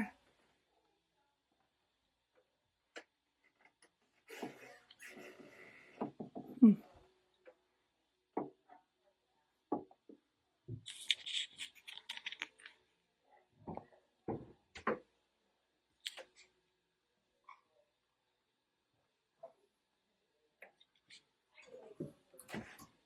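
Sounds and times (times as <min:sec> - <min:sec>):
rustling: 0:10.9 - 0:12.8.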